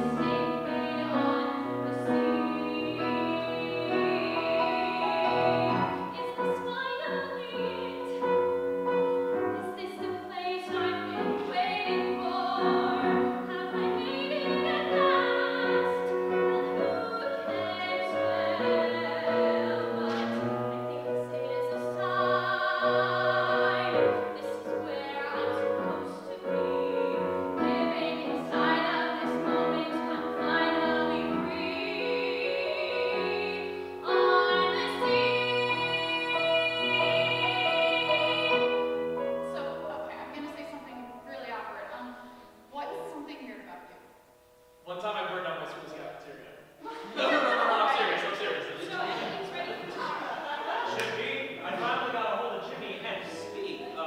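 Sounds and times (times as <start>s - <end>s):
piano accompaniment: 0.0s - 45.6s, 47.2s - 54.0s.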